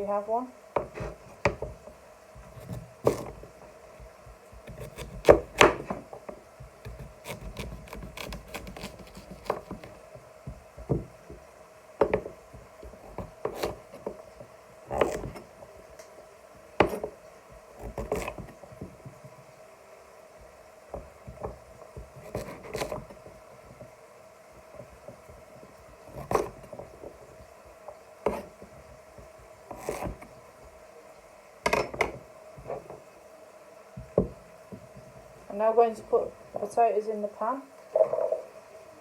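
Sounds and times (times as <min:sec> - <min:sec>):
rubbing on chopping board: 0:00.8 - 0:01.6, 0:06.8 - 0:10.0, 0:12.8 - 0:14.2, 0:22.0 - 0:23.3, 0:29.7 - 0:30.3
knife chopping on a board: 0:00.8 - 0:15.5, 0:16.8 - 0:17.2, 0:17.8 - 0:19.4, 0:20.9 - 0:23.9, 0:24.6 - 0:27.1, 0:28.2 - 0:30.3, 0:31.6 - 0:33.0, 0:34.0 - 0:35.1.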